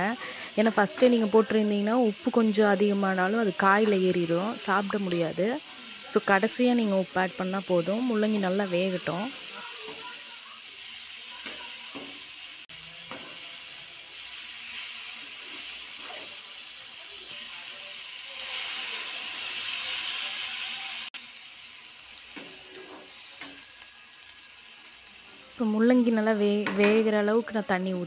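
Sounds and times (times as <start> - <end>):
water hissing in hot pan: 0.0 - 27.8
vegetables sizzling in oil: 0.0 - 28.0
steel spoon scraping: 13.1 - 16.6, 22.4 - 23.9.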